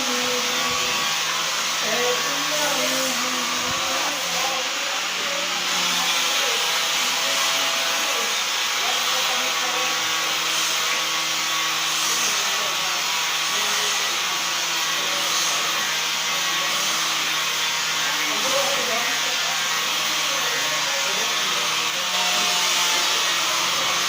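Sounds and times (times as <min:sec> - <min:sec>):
electric sander sanding wood: 0:00.0 - 0:24.0.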